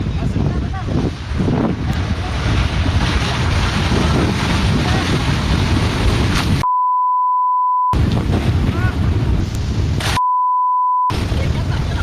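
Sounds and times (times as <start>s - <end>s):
wind buffeting microphone: 0.0s - 6.6s, 8.0s - 10.2s
steady censor bleep: 6.6s - 8.0s, 10.2s - 11.1s.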